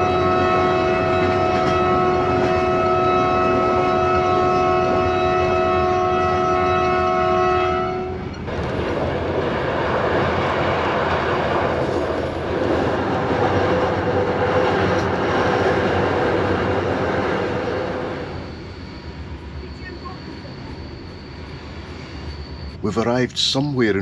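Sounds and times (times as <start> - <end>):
passenger train rumbling on rails: 0.0 - 24.0
held tone: 17.6 - 23.3.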